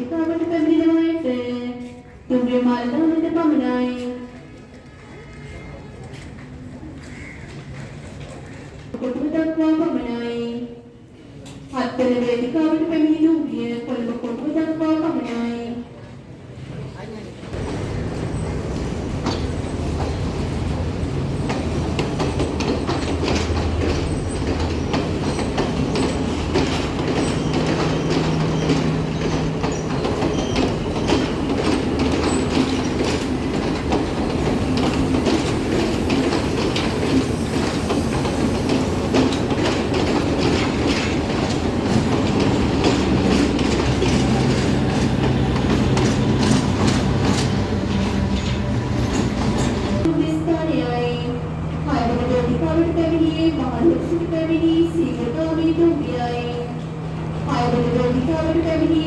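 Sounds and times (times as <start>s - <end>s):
train wheels clicking over rail joints: 17.6s - 50.1s.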